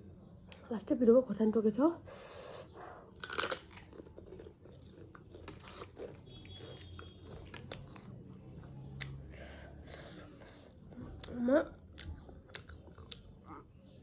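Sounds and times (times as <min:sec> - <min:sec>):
chewing crunchy snack: 0:03.1 - 0:09.4, 0:10.0 - 0:14.0.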